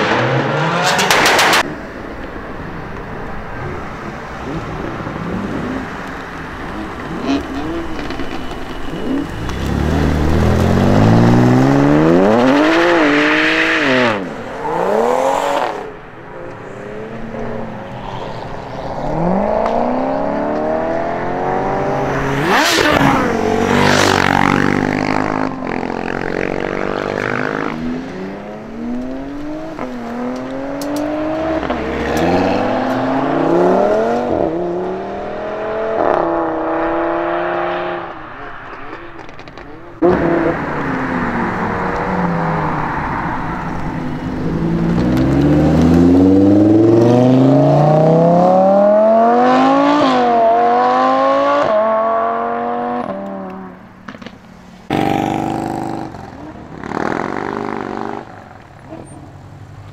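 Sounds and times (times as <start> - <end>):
cars accelerating hard: 0.0 - 1.8, 3.7 - 59.1.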